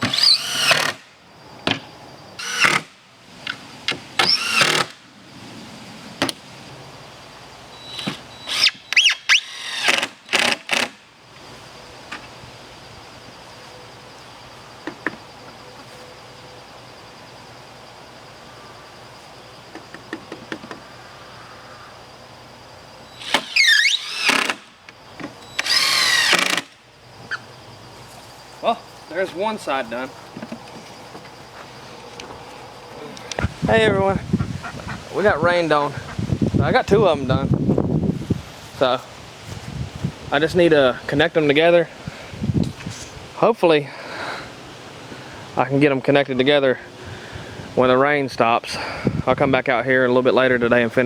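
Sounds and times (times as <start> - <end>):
power drill driving screws: 0.0 - 1.0, 2.4 - 2.9, 4.2 - 5.0, 7.8 - 11.0, 23.1 - 24.8, 25.4 - 26.8.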